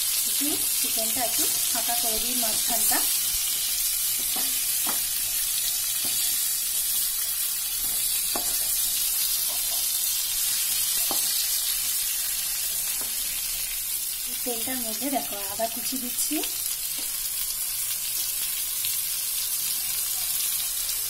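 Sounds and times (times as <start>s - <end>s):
chicken frying in oil: 0.0s - 21.0s
spatula scraping and knocking pan: 1.4s - 5.4s, 6.0s - 7.0s, 7.8s - 10.2s, 10.9s - 11.6s.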